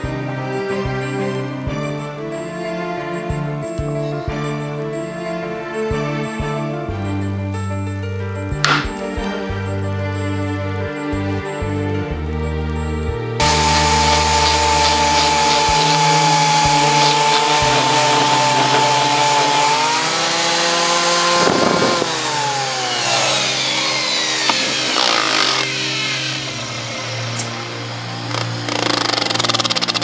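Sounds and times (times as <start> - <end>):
grinding rasp: 13.4 - 27.5
power tool motor whining: 13.4 - 30.0.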